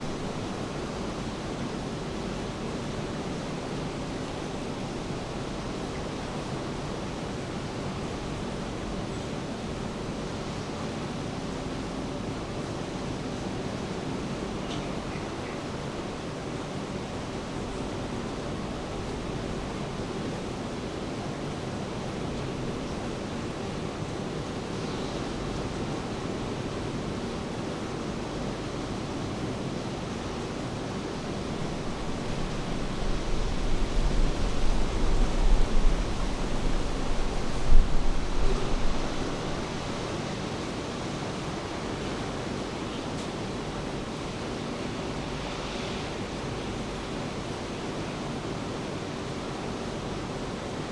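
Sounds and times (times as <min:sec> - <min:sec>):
rain falling: 0:30.5 - 0:42.2.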